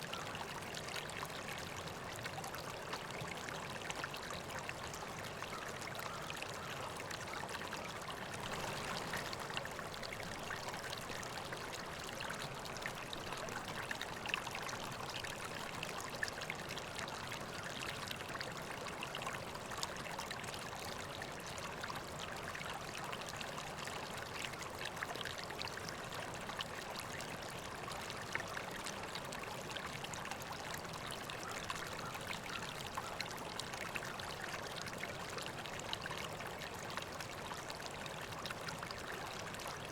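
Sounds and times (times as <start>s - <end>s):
river flowing over rocks: 8.4s - 12.0s.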